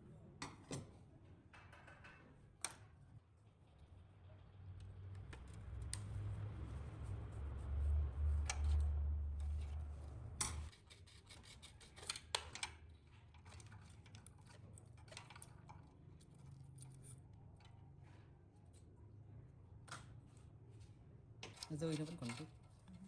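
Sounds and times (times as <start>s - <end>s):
small metal parts and tools clicking: 10.4s - 18.1s, 21.4s - 23.0s.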